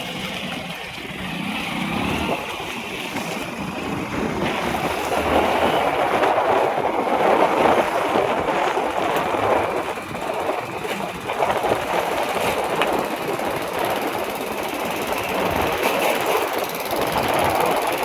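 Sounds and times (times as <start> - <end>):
heavy truck engines running: 0.0 - 18.0
tyres on the road: 0.0 - 18.0.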